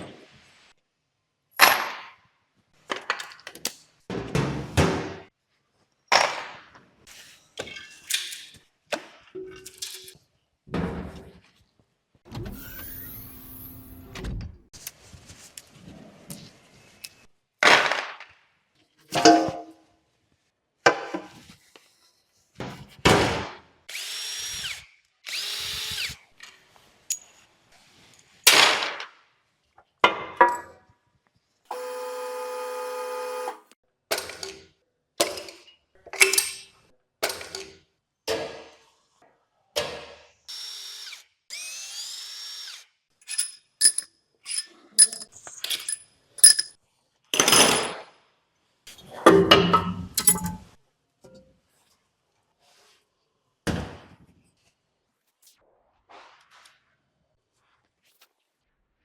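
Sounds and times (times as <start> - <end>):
power tool bursts: 12.4 - 14.1
tools clattering: 43.2 - 46.8, 47.4 - 48.0, 49.7 - 50.7.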